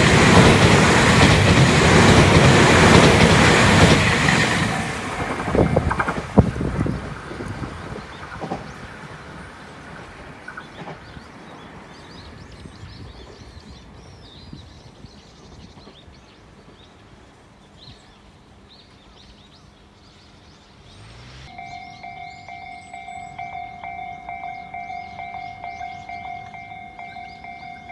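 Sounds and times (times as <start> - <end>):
electric train rumble: 0.0 - 17.6, 19.8 - 27.9
outdoor background noise: 0.0 - 27.9
small birds chirping: 5.9 - 27.9.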